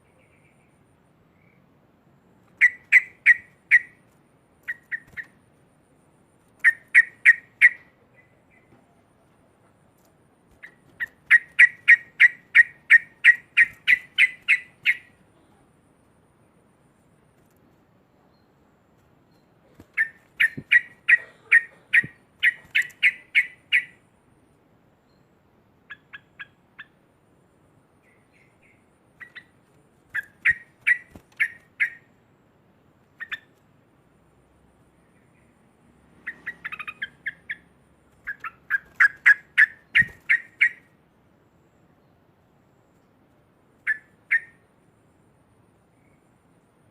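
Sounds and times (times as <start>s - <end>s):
bird chattering calls: 2.6s - 4.0s, 4.7s - 5.4s, 6.6s - 8.7s, 10.6s - 15.2s, 19.8s - 24.0s, 30.2s - 32.1s, 33.2s - 33.5s, 36.2s - 40.9s, 43.9s - 44.6s.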